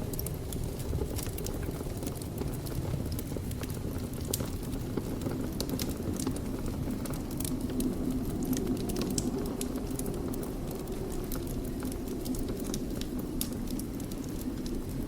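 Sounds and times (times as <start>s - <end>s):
fire burning with crackles: 0.0s - 15.0s.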